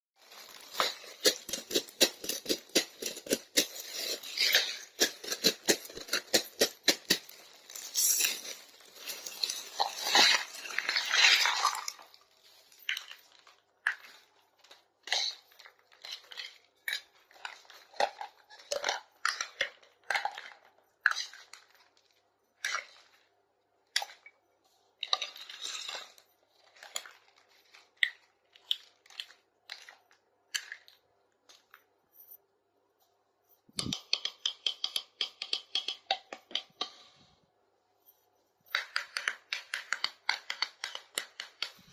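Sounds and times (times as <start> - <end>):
packaging tearing and crinkling: 0.2 - 16.6
plastic toy kitchenware clicking: 0.8 - 8.2, 33.8 - 37.1, 38.7 - 41.9.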